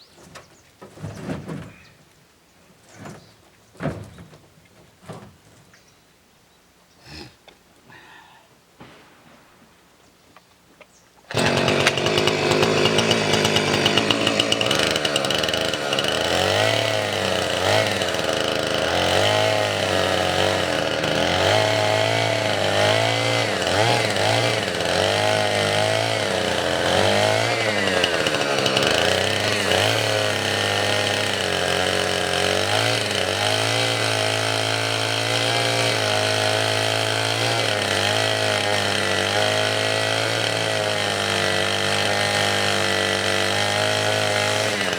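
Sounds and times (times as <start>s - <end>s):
chainsaw cutting wood: 11.3s - 44.9s.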